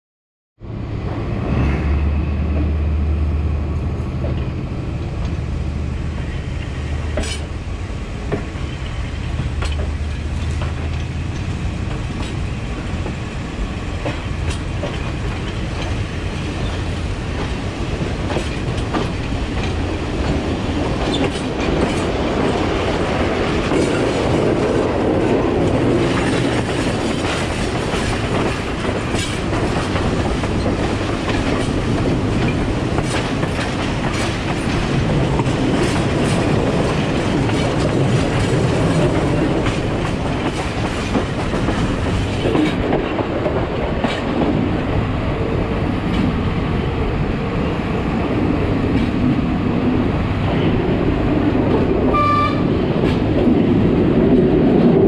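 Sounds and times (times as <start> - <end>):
train running low drone: 0.6 - 55.0
wheels clicking over rail joints: 6.3 - 7.6, 8.3 - 13.2, 14.0 - 44.7.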